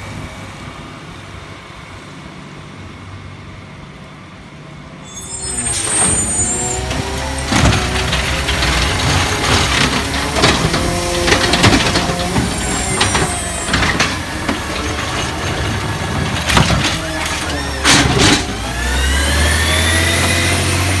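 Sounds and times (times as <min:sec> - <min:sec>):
clanks and knocks: 0:05.1 - 0:21.0
garbage truck engine accelerating: 0:05.1 - 0:21.0
loud burst of noise: 0:05.1 - 0:21.0.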